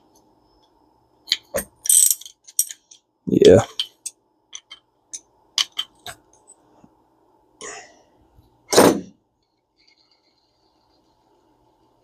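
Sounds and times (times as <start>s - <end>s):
person coughing: 7.6s - 8.0s.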